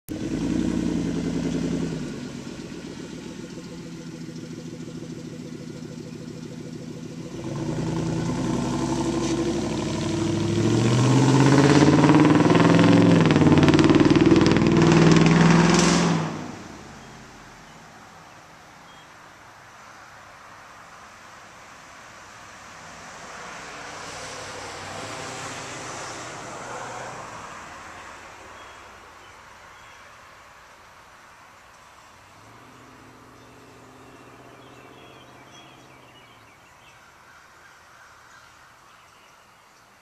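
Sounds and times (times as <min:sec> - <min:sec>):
truck engine idling and revving: 0:00.0 - 0:18.0, 0:22.9 - 0:27.8, 0:32.2 - 0:36.8.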